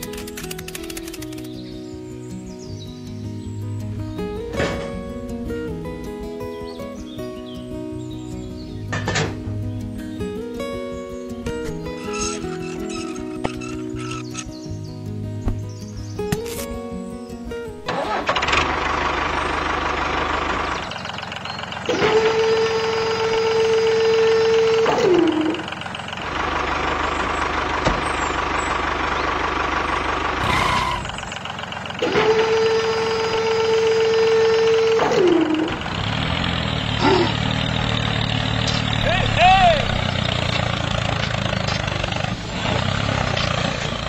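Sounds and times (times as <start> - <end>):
model tractor engine drone: 0.0 - 1.7, 11.8 - 14.5, 17.9 - 44.0.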